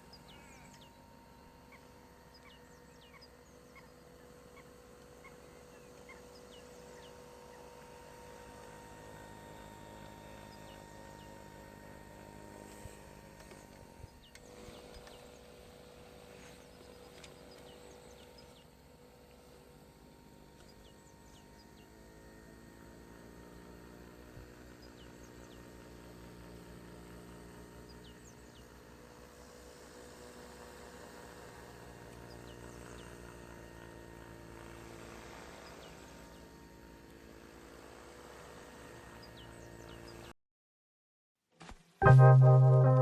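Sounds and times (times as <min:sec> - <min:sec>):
small motor buzzing: 0:00.0 - 0:40.3
outdoor background noise: 0:00.0 - 0:40.4
short high chirps: 0:42.0 - 0:43.0.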